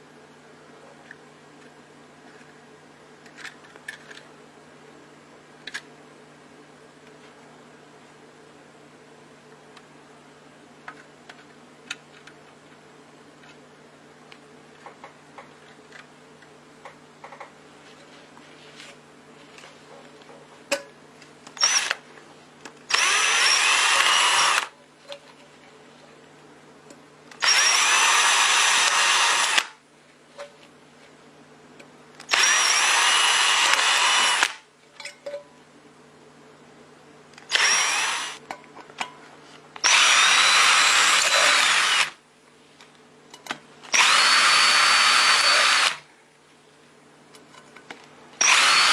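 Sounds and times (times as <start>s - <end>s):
power tool motor whine: 21.6s - 22.0s, 22.9s - 24.7s, 27.4s - 29.8s, 32.3s - 34.6s, 37.5s - 38.4s, 39.8s - 42.2s, 43.9s - 46.0s, 48.4s - 48.9s.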